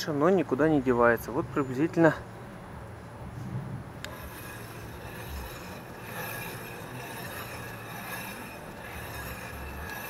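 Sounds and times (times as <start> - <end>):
brake grinding and scraping: 4.0 - 10.0
high-pitched brake squeal: 4.2 - 10.0.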